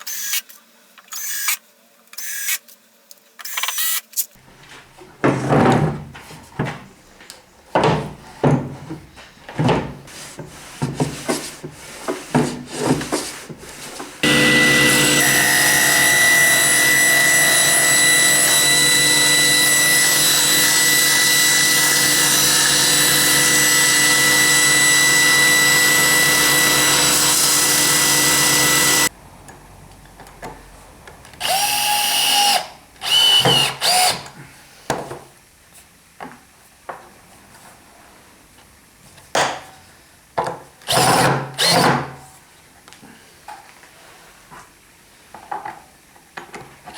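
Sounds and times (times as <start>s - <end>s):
electric power tool running: 14.2s - 29.1s.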